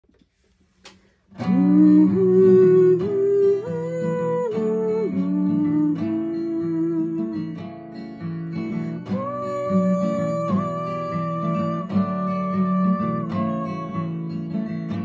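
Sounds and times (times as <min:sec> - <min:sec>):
acoustic guitar strumming: 0:01.3 - 0:15.0.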